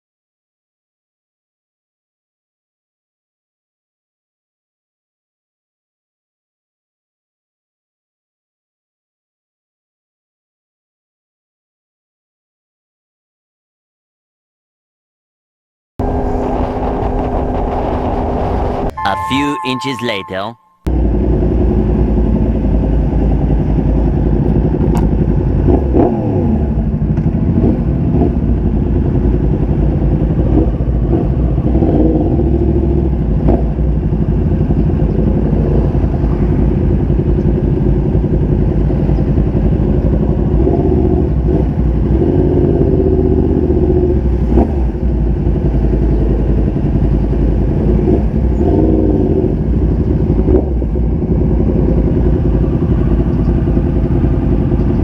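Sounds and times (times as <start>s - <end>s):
motorcycle engine running: 20.9s - 55.0s.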